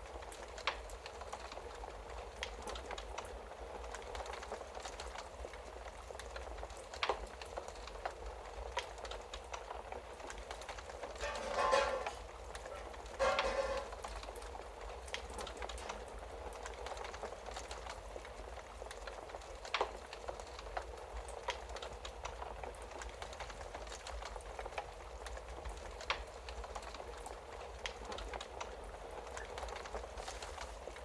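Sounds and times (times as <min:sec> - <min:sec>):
wood fire crackling: 0:00.0 - 0:31.0
sharp pops of fire: 0:06.2 - 0:22.1.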